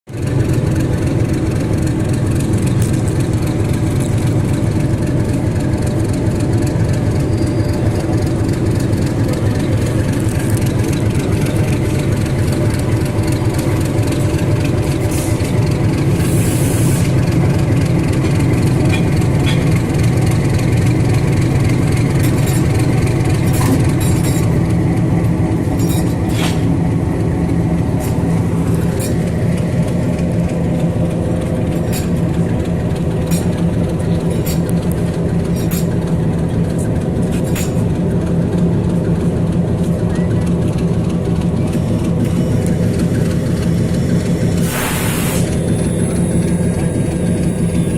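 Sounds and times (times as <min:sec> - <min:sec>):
diesel locomotive engine running: 0:00.1 - 0:47.9
brief hiss: 0:44.6 - 0:45.5.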